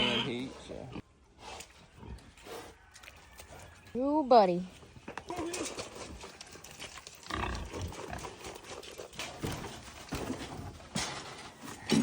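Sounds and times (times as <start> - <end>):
pig grunting: 0.0 - 1.0, 7.2 - 8.4.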